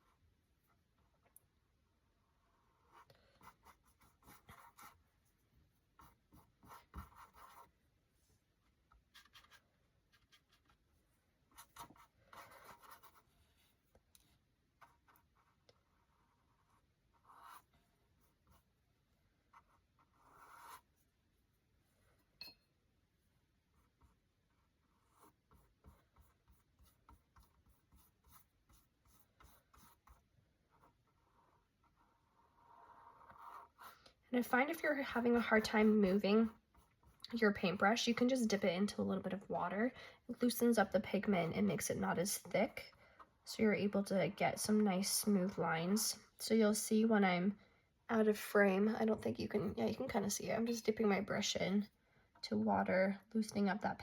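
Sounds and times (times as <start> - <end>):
paintbrush scratching on canvas: 2.2 - 7.8, 9.0 - 13.9, 14.8 - 21.6, 23.7 - 38.5.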